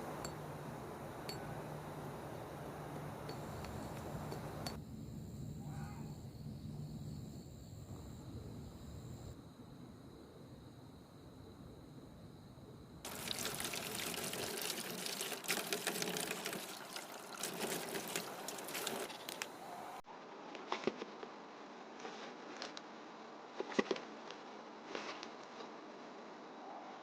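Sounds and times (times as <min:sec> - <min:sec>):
liquid pouring and splashing: 0:13.0 - 0:19.2.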